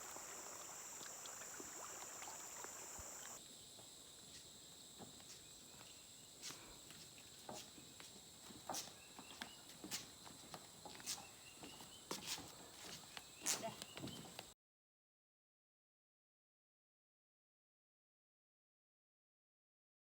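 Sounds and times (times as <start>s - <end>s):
high-pitched insect chorus: 0.0s - 4.7s.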